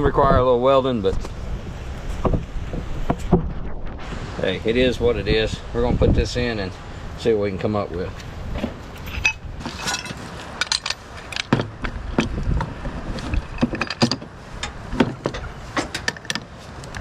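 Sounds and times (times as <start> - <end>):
metal parts clicking and knocking: 9.0 - 16.5.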